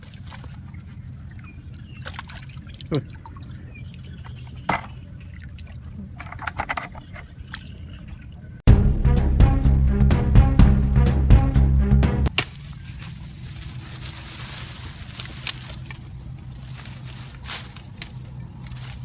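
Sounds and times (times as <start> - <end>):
water plop: 0.0 - 6.0
water splashing and trickling: 0.0 - 8.6, 12.3 - 19.0
steady low rumble: 8.7 - 19.0.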